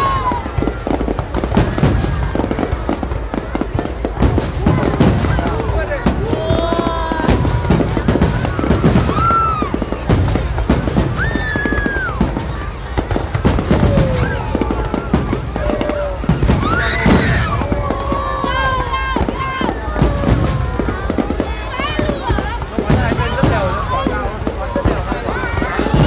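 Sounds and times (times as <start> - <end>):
fireworks bangs and crackling: 0.0 - 26.0
people calling out: 3.8 - 10.1, 11.2 - 26.0.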